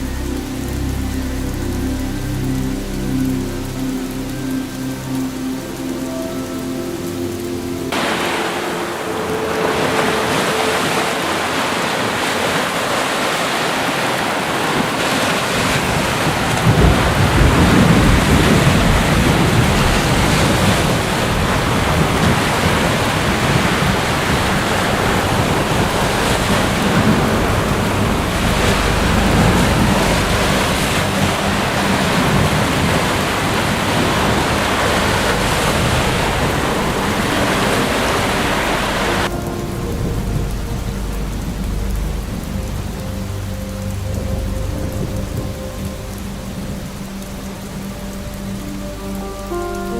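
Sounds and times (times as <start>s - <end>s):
heavy rain: 0.0s - 49.9s
low rumble of thunder: 14.3s - 49.9s.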